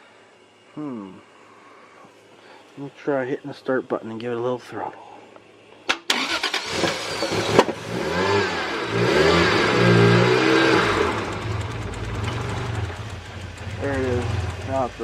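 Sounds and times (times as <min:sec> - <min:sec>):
car engine revving and idling: 0:06.2 - 0:15.0.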